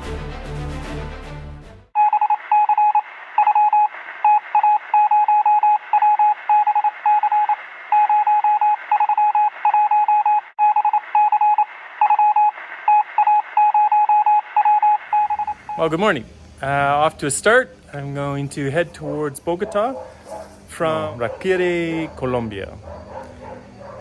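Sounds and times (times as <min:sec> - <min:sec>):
morse code beeps: 0:02.0 - 0:16.0.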